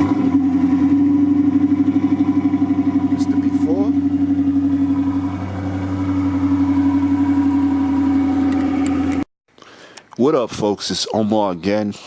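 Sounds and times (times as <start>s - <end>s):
car engine idling: 0.0s - 9.2s.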